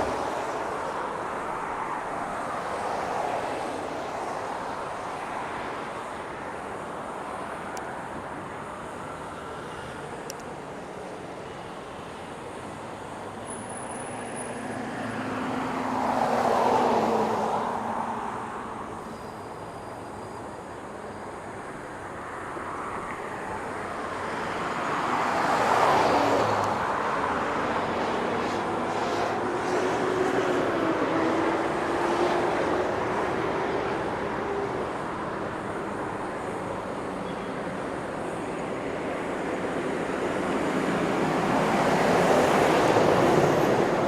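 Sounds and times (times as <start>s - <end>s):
steady road noise: 0.0s - 44.0s
vehicles passing close by: 0.0s - 44.0s.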